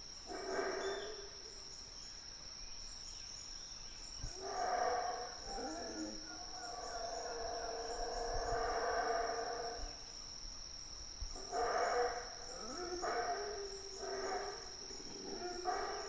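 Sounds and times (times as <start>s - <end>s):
high insect trill: 0.0s - 16.0s
howler monkeys howling: 4.4s - 10.0s, 11.4s - 16.0s.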